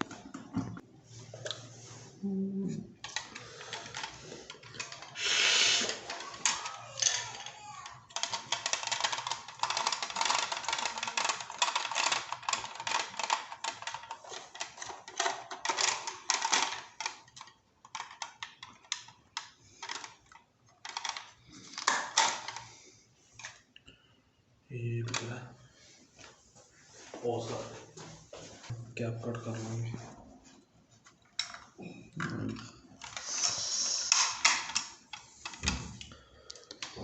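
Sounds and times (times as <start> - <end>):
small hard parts clattering: 3.0 - 23.6, 31.0 - 37.0
short hiss: 5.2 - 5.9.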